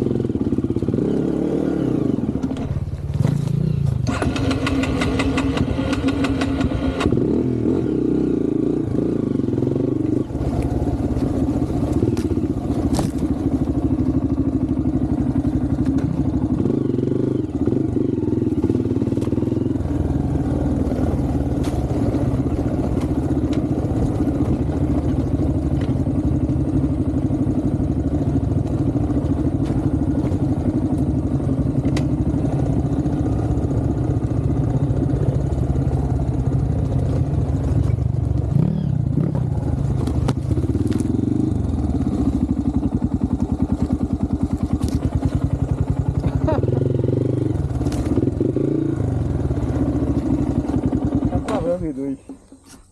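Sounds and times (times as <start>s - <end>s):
motorcycle engine running: 0.0s - 52.9s
bike knocks and clatter: 12.0s - 13.4s.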